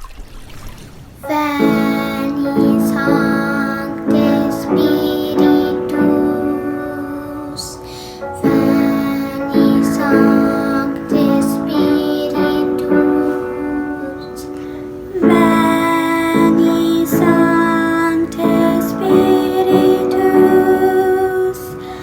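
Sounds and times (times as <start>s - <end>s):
children's choir singing: 1.2s - 22.0s
piano accompaniment: 1.2s - 22.0s.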